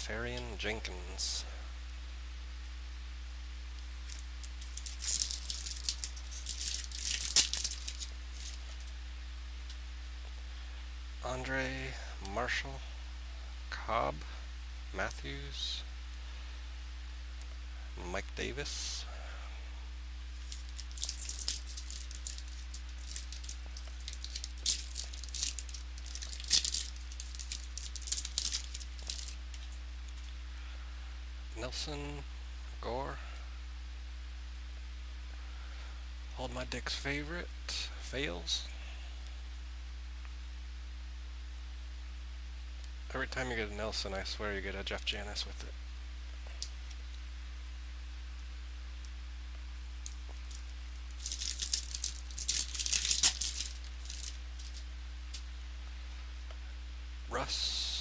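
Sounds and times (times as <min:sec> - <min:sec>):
low electrical hum: 0:00.0 - 0:58.0
card packaging crinkling: 0:03.8 - 0:08.9, 0:20.3 - 0:29.8, 0:49.9 - 0:55.4
sharp crackle: 0:03.8 - 0:08.9, 0:20.3 - 0:30.4, 0:49.9 - 0:55.5.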